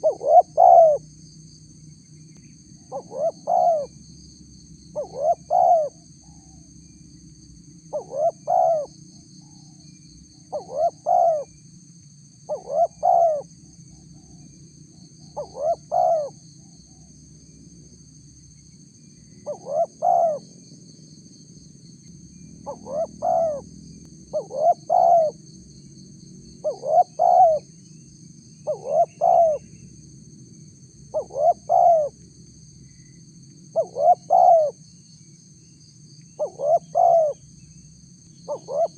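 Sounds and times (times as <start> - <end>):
dove cooing: 0.0 - 1.0, 2.9 - 3.9, 5.0 - 6.6, 7.9 - 8.9, 10.5 - 11.5, 12.5 - 13.5, 15.4 - 16.4, 19.4 - 20.5, 22.6 - 23.7, 24.3 - 25.4, 26.6 - 27.6, 28.6 - 29.7, 31.1 - 32.2, 33.8 - 34.8, 36.4 - 37.4, 38.5 - 38.9.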